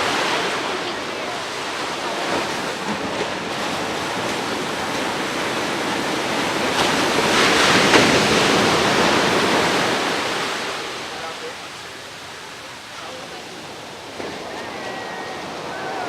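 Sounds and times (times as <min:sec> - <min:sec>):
ocean waves washing ashore: 0:00.0 - 0:16.0.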